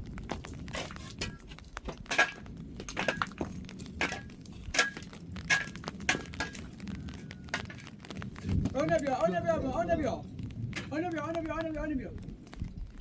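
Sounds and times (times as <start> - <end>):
hard objects clicking and knocking: 0.3 - 9.0.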